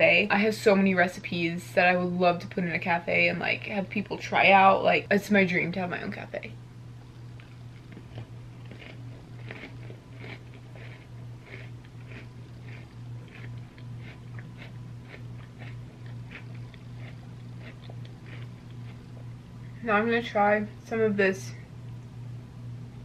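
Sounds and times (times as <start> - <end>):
steady low hum: 0.0 - 23.0
crunchy cookie chewing: 7.0 - 19.5.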